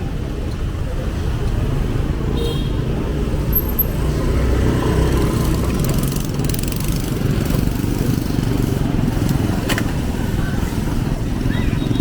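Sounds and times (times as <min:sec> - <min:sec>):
road noise: 0:00.0 - 0:12.0
small motorbike engines running: 0:04.4 - 0:12.0.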